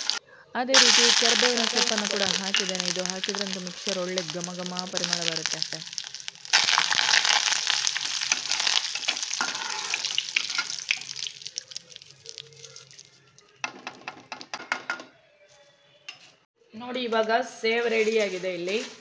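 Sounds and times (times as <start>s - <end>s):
leaves sizzling in hot oil: 0.0s - 0.2s, 0.8s - 13.2s.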